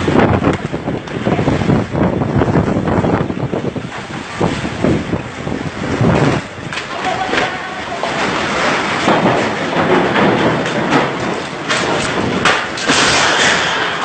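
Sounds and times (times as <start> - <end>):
wind buffeting microphone: 0.0 - 14.0
short knocks and rattles: 6.2 - 14.0.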